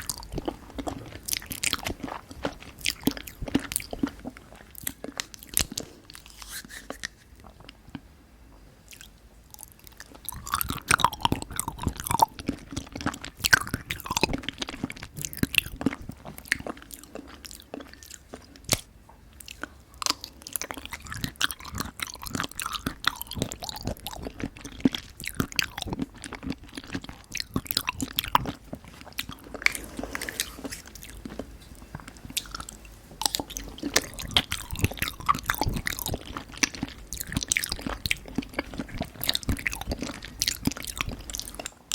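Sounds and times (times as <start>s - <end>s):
quick irregular mouth clicks: 5.6s - 7.3s
wet mouth smacks chewing: 17.7s - 26.0s.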